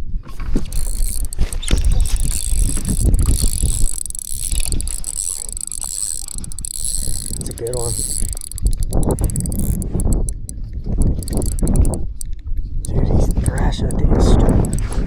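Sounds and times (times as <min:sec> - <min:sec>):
fishing reel gears whirring: 0:00.4 - 0:15.0
wind rumble on microphone: 0:12.8 - 0:15.0.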